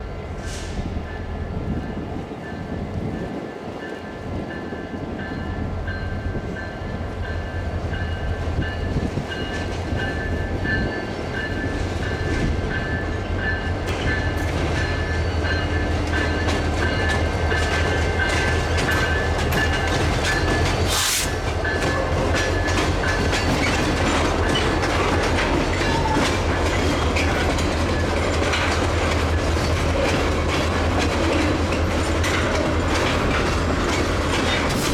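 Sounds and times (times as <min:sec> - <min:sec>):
train wheels clacking over rail joints: 0:07.9 - 0:34.9.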